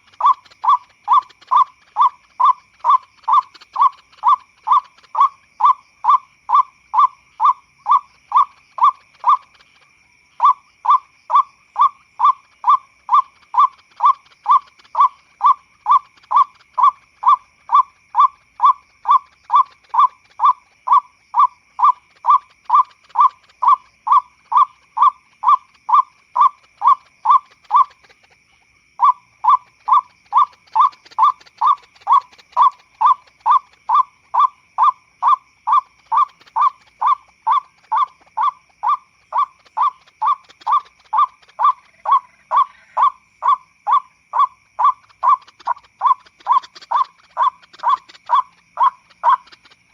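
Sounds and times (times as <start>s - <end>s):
waterhen calling: 0.0s - 5.8s, 29.0s - 49.9s.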